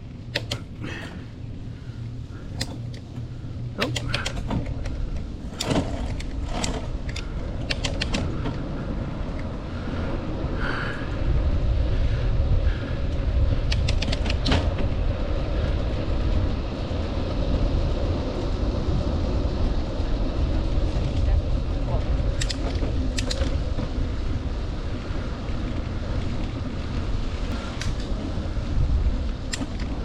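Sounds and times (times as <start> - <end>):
wind buffeting microphone: 0.0 - 30.0
bicycle rattling clicks: 0.2 - 1.1, 2.4 - 8.7, 13.1 - 14.9, 22.2 - 23.8, 24.6 - 28.3, 29.2 - 30.0.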